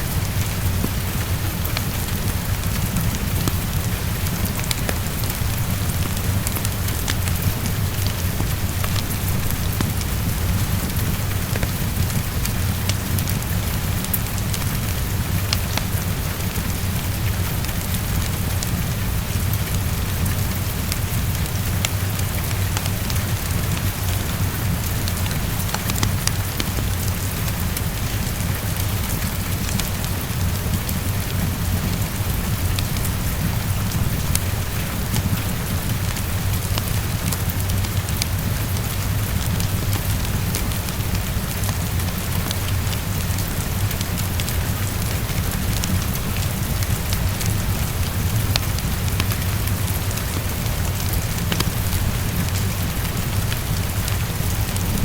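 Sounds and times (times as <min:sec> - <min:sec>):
heavy rain against a window: 0:00.0 - 0:55.0.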